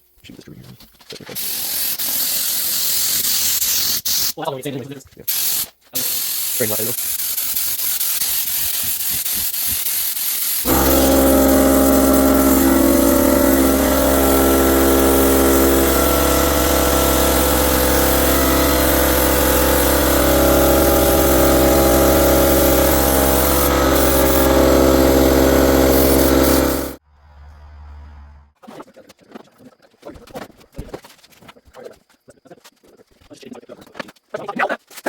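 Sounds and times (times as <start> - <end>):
spray paint gun hissing: 1.4 - 4.3, 5.3 - 27.0
air compressor running: 6.0 - 27.0.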